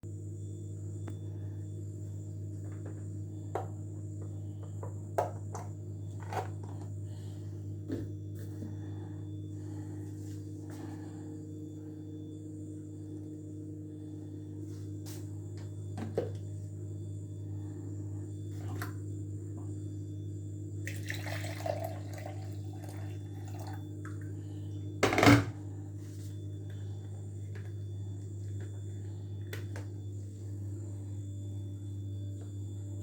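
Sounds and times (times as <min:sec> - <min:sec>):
electrical hum: 0:00.0 - 0:33.0.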